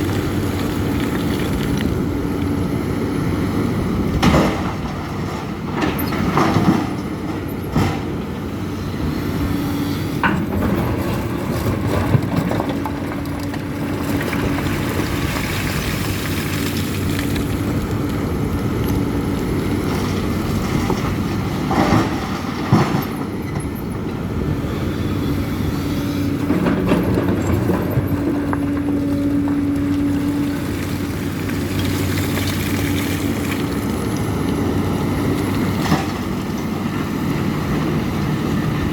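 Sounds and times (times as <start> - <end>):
excavator diesel engine running: 0.0 - 38.9
metal clanks and knocks: 4.1 - 8.4, 10.2 - 13.6, 26.4 - 30.7.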